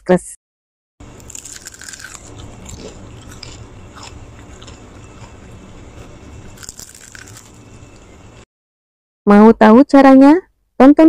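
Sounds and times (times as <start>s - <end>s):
person chewing crunchy food: 1.0s - 8.4s
steady low hum: 1.0s - 8.5s.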